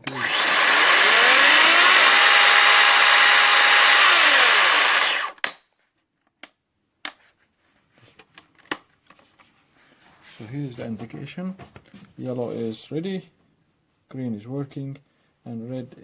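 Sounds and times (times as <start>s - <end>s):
battery chainsaw running: 0.0s - 5.4s.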